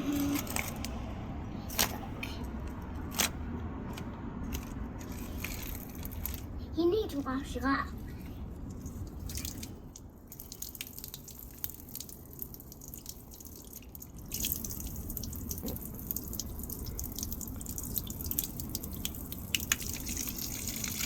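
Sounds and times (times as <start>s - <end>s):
water dripping and splashing: 8.1s - 21.0s.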